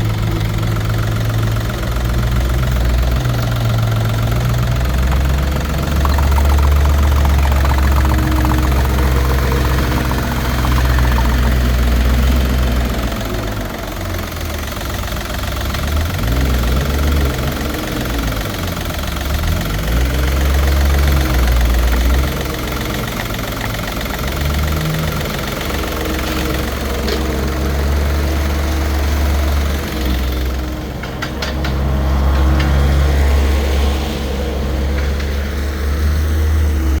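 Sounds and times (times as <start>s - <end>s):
diesel engine idling: 0.0s - 30.8s.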